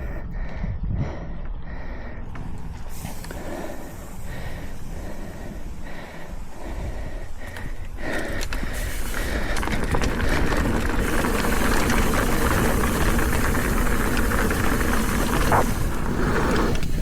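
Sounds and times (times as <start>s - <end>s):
bike tyre noise: 0.0s - 17.0s
bike rattling over rocks: 7.3s - 17.0s.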